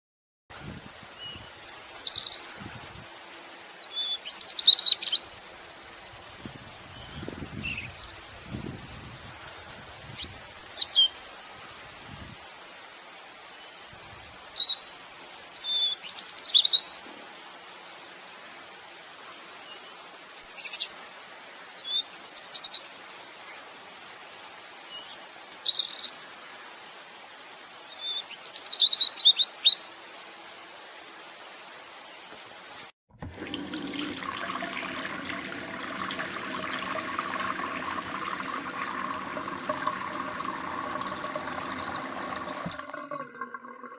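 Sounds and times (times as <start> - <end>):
songbird singing: 1.2 - 5.4.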